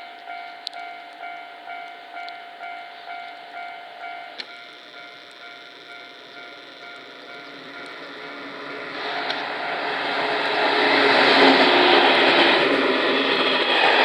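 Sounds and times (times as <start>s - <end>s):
level crossing warning bell ringing: 0.0s - 10.7s.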